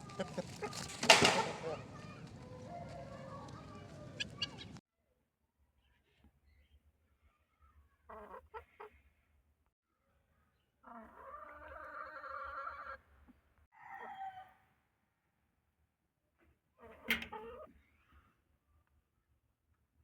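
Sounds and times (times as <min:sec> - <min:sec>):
chickens calling: 0:00.0 - 0:04.8, 0:08.1 - 0:09.0, 0:10.8 - 0:13.1
rooster crowing: 0:02.4 - 0:04.3.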